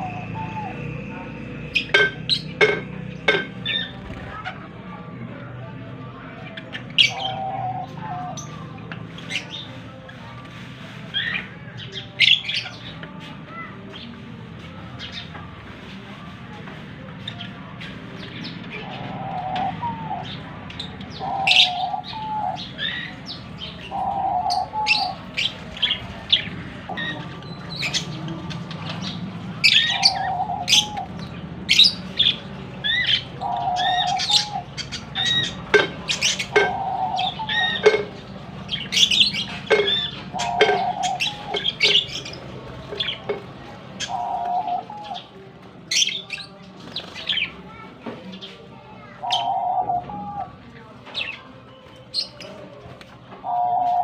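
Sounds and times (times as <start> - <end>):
parrots chirping: 0.0 - 4.7, 18.8 - 43.4
dove cooing: 6.9 - 8.8, 18.8 - 27.2, 27.8 - 43.4, 44.0 - 45.5, 49.1 - 50.6, 53.4 - 54.0.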